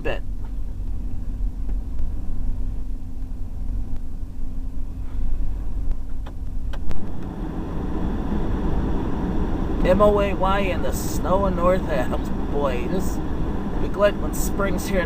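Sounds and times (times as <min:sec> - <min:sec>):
low engine rumble: 0:00.0 - 0:15.0
loud rushing noise: 0:06.8 - 0:15.0.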